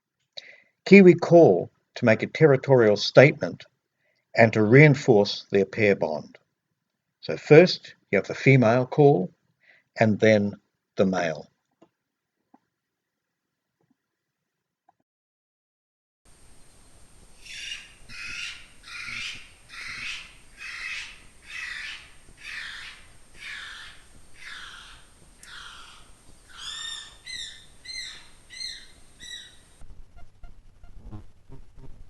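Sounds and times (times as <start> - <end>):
kiwi high-pitched call: 17.4 - 29.7
kiwi guttural rasping call: 17.4 - 31.7.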